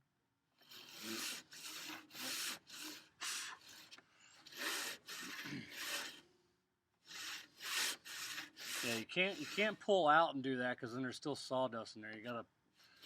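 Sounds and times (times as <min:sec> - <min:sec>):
handsaw cutting wood: 0:00.6 - 0:06.3, 0:07.0 - 0:10.0.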